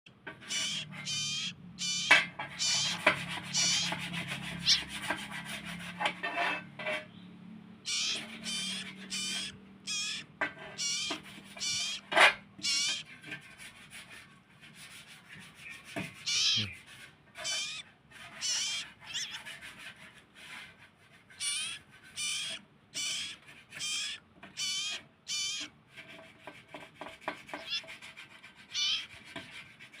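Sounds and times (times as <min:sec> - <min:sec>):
songbird chirping: 0:00.4 - 0:04.0, 0:04.6 - 0:04.9, 0:07.1 - 0:13.1, 0:15.7 - 0:17.8, 0:18.4 - 0:19.4.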